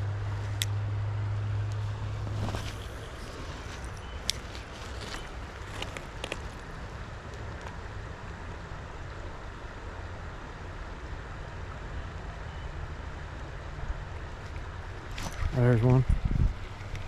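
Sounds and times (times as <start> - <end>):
creek water running: 1.7 - 10.6, 13.7 - 17.0.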